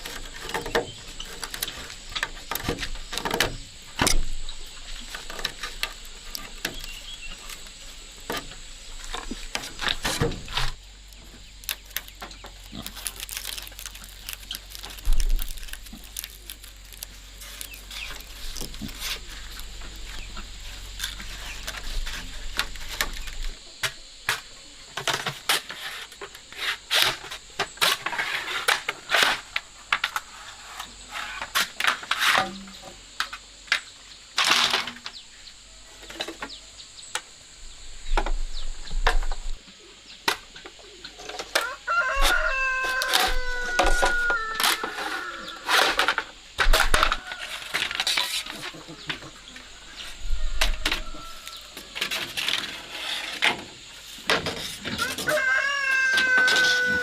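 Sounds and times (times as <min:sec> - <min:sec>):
chickens: 0:38.6 - 0:57.0
rooster crowing: 0:41.6 - 0:45.8, 0:50.0 - 0:52.0, 0:55.0 - 0:57.0.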